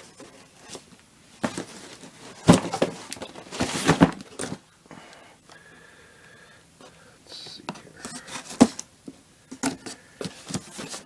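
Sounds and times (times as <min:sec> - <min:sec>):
cardboard box being opened: 0:01.4 - 0:04.6.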